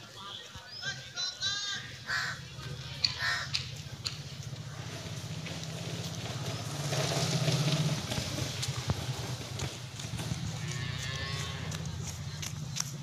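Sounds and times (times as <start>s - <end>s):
harsh bird calls: 0.7s - 3.8s.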